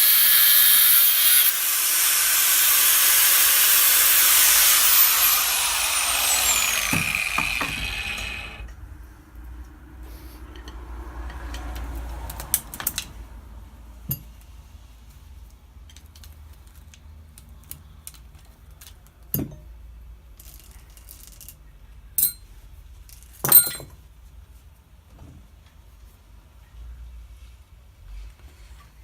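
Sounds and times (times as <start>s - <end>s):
metal parts clinking and knocking: 22.2s - 22.4s, 23.4s - 23.9s.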